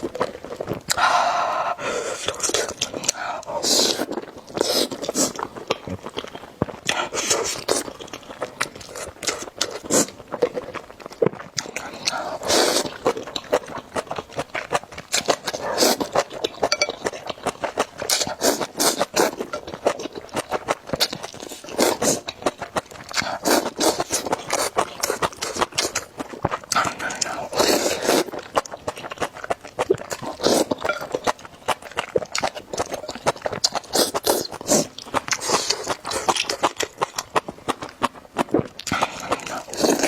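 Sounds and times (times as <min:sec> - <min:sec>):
wet chewing: 0:00.0 - 0:40.0
noodle slurps: 0:12.1 - 0:13.1, 0:26.8 - 0:28.4, 0:29.8 - 0:31.2, 0:38.4 - 0:40.0.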